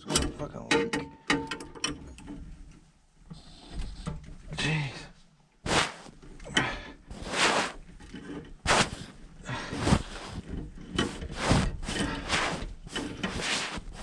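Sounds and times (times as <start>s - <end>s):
wrench scraping on pipe threads: 5.7s - 14.0s.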